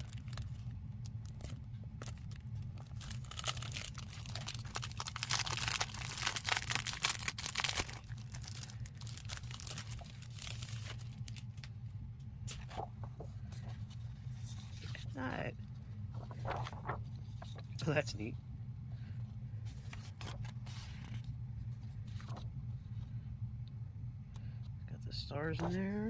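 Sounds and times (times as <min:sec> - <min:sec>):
paper rustling and crinkling: 0:00.0 - 0:11.7, 0:12.5 - 0:15.4, 0:16.0 - 0:17.9, 0:19.6 - 0:22.9.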